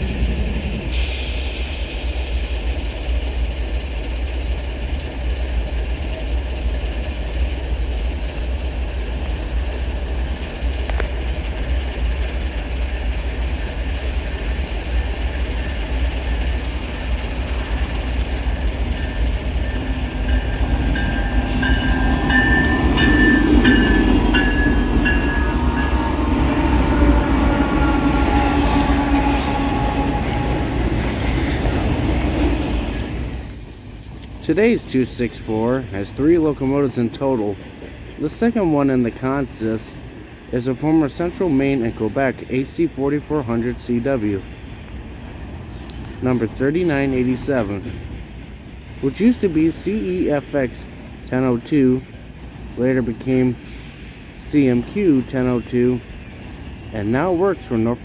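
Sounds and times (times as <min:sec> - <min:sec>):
diesel freight train rumbling past: 0:00.0 - 0:58.0
sustained train horn tones: 0:19.8 - 0:32.8.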